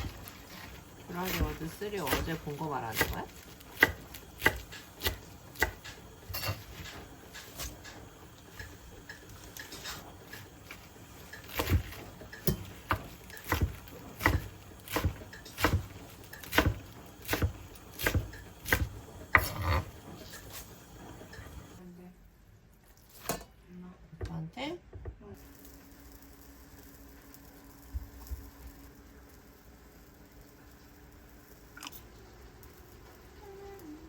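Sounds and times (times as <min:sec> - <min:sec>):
knife chopping on cutting board: 0:01.2 - 0:06.6, 0:11.5 - 0:19.9.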